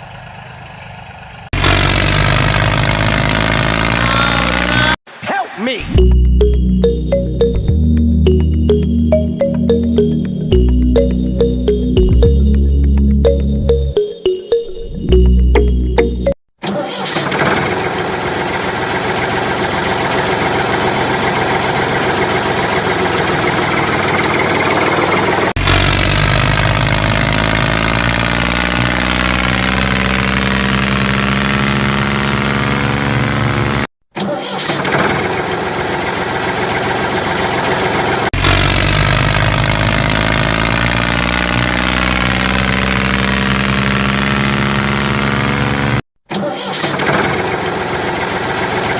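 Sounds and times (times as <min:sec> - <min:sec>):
engine running and revving: 0:00.0 - 0:05.0, 0:17.2 - 0:33.9, 0:34.9 - 0:46.0, 0:47.0 - 0:48.9.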